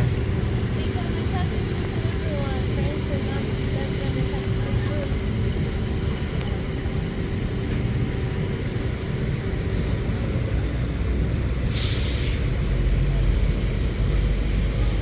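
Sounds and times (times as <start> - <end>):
heavy vehicle rumbling: 0.0 - 15.0
air brakes hissing: 11.7 - 12.7.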